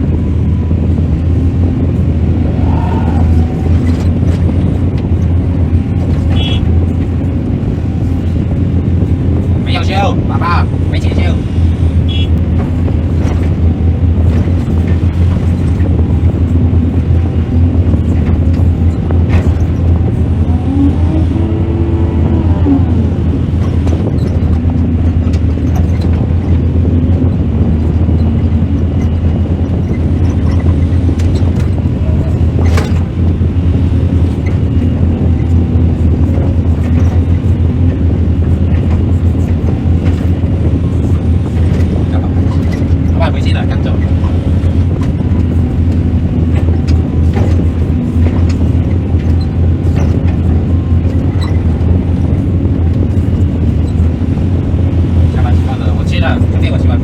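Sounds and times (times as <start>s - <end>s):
excavator diesel engine humming: 0.0s - 57.0s
whine rising and falling: 2.2s - 4.5s.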